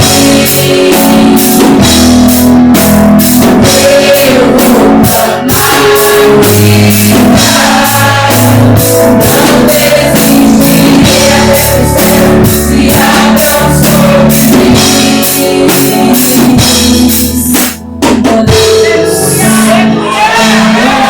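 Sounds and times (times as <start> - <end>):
band playing worship music: 0.0 - 21.0
singing: 18.2 - 21.0.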